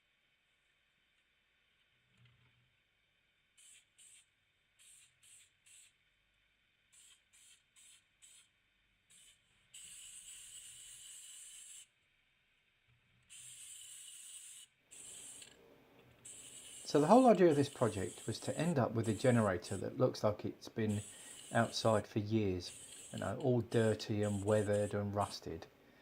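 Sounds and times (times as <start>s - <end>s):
aerosol can spraying: 3.6s - 6.0s, 6.9s - 8.5s, 13.3s - 15.5s, 16.2s - 25.6s.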